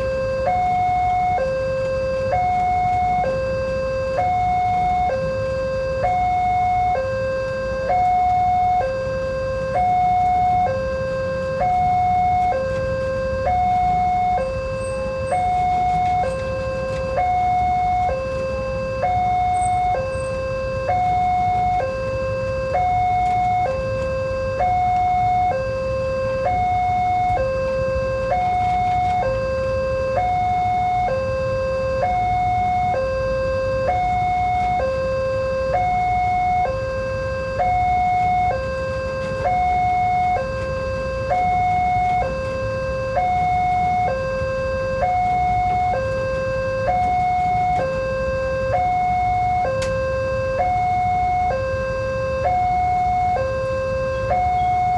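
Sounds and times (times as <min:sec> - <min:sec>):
two-tone level crossing alarm: 0:00.0 - 0:54.9.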